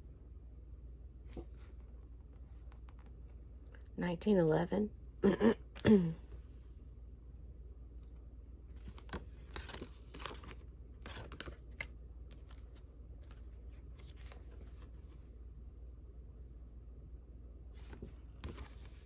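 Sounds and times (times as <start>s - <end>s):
paper rustling and scraping: 8.8s - 15.2s, 17.8s - 19.0s.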